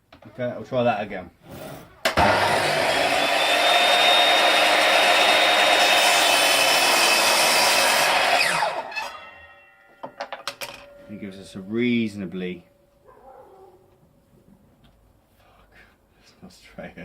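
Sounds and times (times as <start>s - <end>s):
electric chop saw cutting wood: 2.0s - 9.5s
saw blade winding down: 2.0s - 9.5s.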